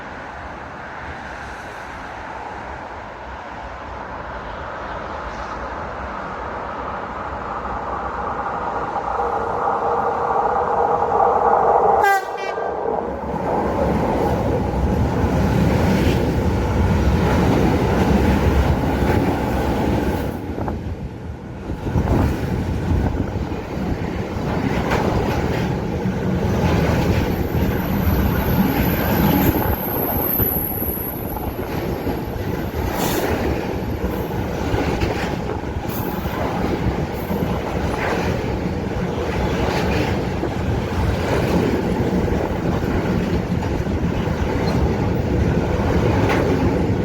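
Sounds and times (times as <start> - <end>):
train wheels rumbling on rail: 0.0 - 47.0
high whine: 7.6 - 15.0
train horn: 11.9 - 13.0.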